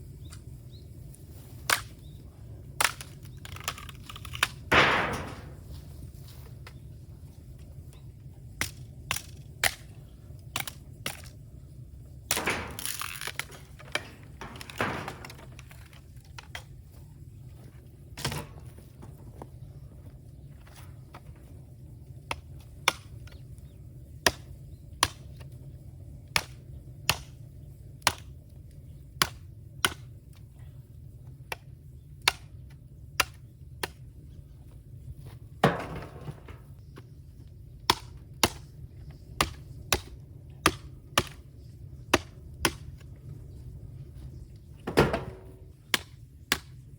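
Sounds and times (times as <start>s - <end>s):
low steady rumble: 0.0s - 46.9s
bamboo cracking and popping: 1.1s - 5.9s, 7.9s - 11.4s, 12.3s - 16.8s, 24.2s - 25.5s, 26.4s - 27.4s, 28.0s - 30.5s, 31.4s - 34.1s, 37.8s - 41.5s, 42.1s - 43.2s, 45.8s - 46.8s.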